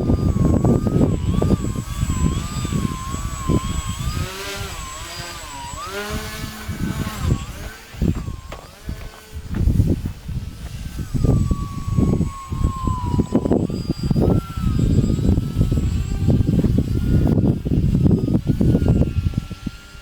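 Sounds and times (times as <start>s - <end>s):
model plane propeller whine: 0.0s - 20.0s
wind buffeting microphone: 0.0s - 20.0s.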